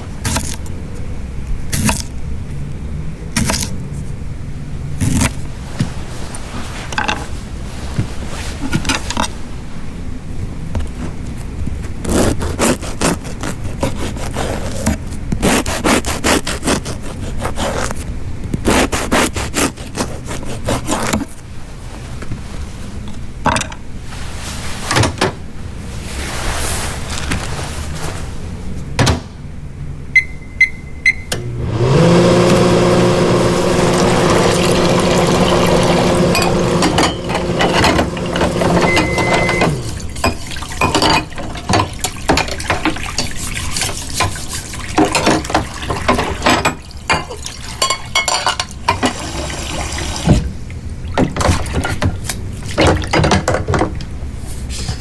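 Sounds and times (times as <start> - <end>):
short electronic beeps: 30.2 - 31.3, 38.8 - 39.7
appliance motor humming: 31.4 - 40.2.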